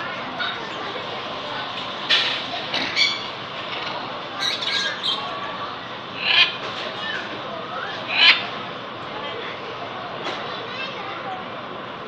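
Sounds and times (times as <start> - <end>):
bird squawking: 2.8 - 5.4, 6.1 - 8.6.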